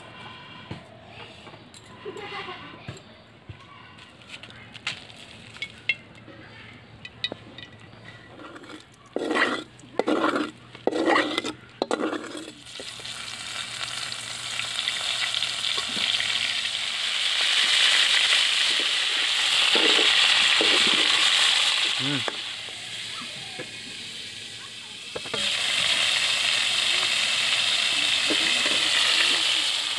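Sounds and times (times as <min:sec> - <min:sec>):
vegetables sizzling in hot oil: 0:12.1 - 0:29.9.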